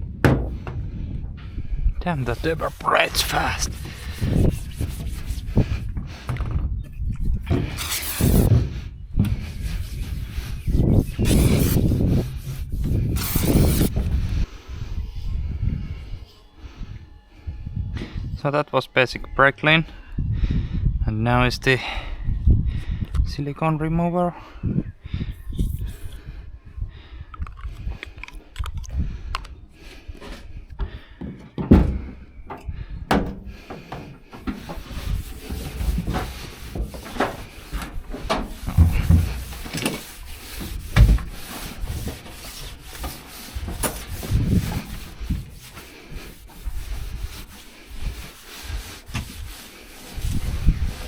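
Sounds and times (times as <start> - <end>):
handling knocks and thumps: 0.0 - 1.4, 3.3 - 9.6, 30.8 - 45.5
cloth wiping panels: 2.2 - 5.8, 7.5 - 8.8, 9.5 - 14.0, 33.2 - 51.0.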